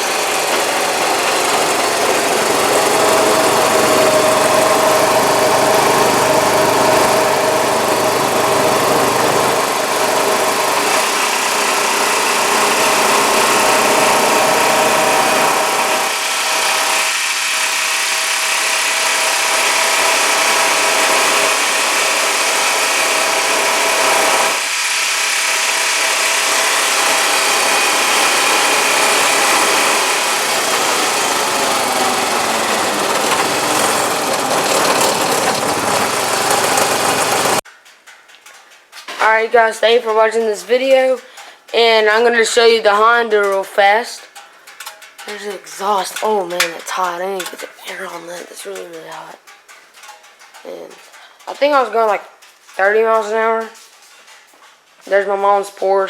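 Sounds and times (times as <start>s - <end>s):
off-road vehicle engine running: 0.0s - 37.6s, 38.4s - 54.4s.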